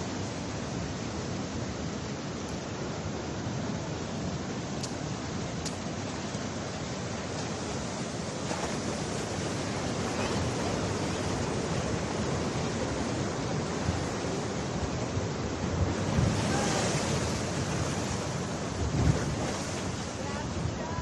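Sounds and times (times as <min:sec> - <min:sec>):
ocean surf on beach: 0:00.0 - 0:21.0
wind buffeting microphone: 0:07.6 - 0:21.0.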